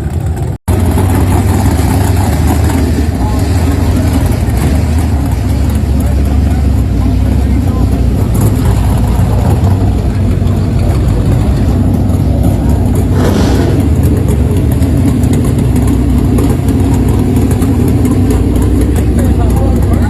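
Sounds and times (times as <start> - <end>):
engine idling: 0.0 - 20.0
short rush of noise: 13.0 - 14.6.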